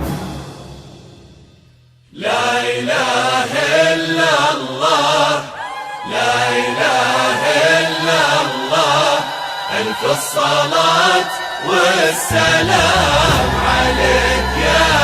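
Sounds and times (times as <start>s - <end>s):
devotional chanting: 2.1s - 15.0s
low held drone: 12.3s - 15.0s.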